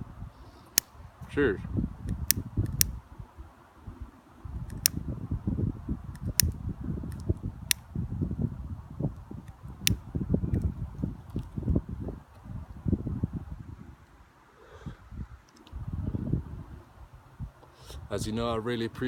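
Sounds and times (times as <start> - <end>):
wind buffeting microphone: 0.0 - 14.2, 14.8 - 19.0
sharp clicks: 2.1 - 3.0, 4.7 - 5.0, 6.1 - 7.8.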